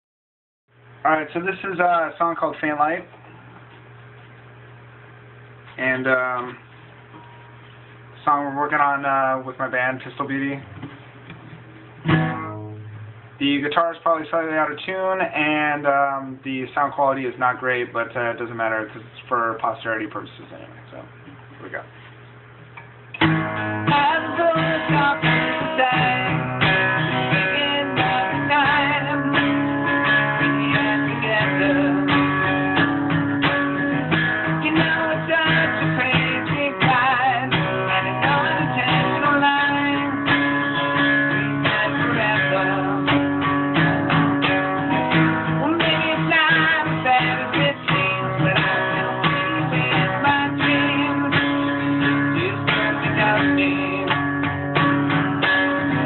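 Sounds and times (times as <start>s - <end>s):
guitar strummed and picked: 9.6s - 13.4s, 22.8s - 56.0s
person talking: 13.4s - 22.0s.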